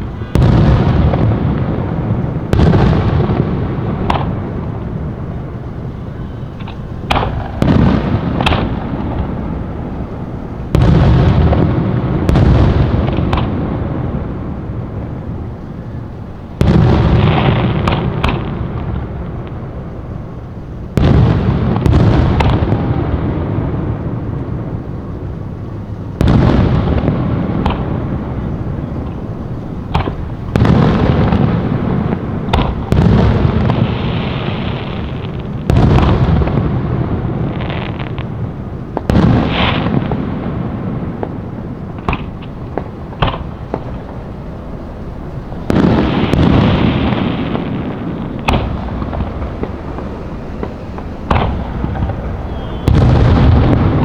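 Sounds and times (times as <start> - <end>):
fireworks booming: 0.0 - 54.0
fireworks cracks and pops: 0.0 - 54.0.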